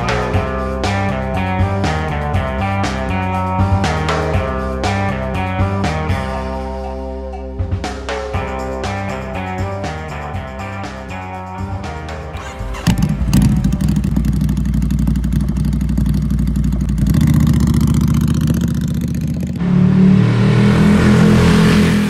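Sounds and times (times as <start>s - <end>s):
motorcycle engine idling: 12.4s - 19.6s
louder higher engine sound: 12.4s - 22.0s.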